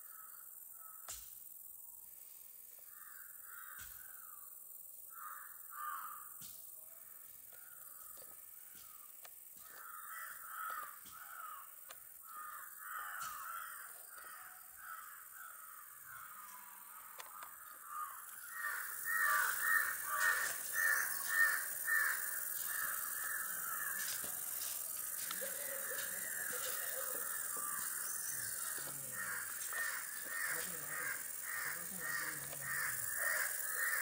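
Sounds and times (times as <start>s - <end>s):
bird calling: 12.3s - 34.0s.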